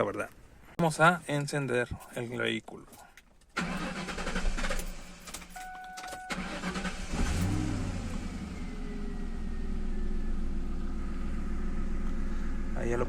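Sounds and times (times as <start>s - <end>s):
car engine starting and idling: 3.5s - 13.0s
short steady beep: 5.6s - 6.4s.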